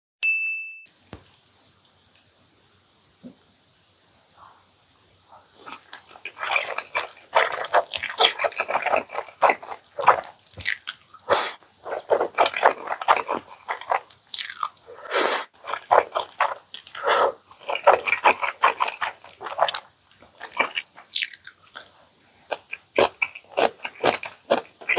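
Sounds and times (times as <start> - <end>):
wet chewing of food: 5.4 - 24.9
noisy mouth sounds: 5.5 - 21.2.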